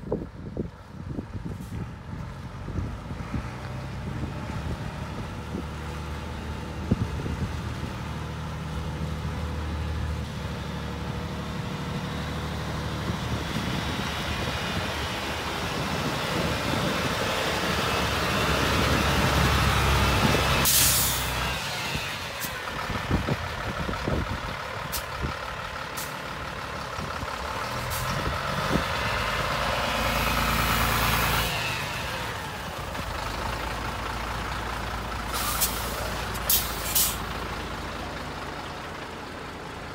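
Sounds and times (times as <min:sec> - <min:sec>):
diesel truck engine running: 0:00.0 - 0:39.9
compressed air hiss: 0:20.7 - 0:21.3, 0:35.3 - 0:37.2.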